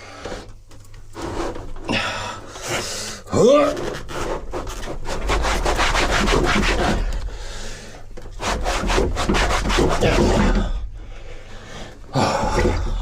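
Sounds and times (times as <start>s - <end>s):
hand tool scraping hard surface: 2.6s - 7.6s, 8.3s - 10.9s.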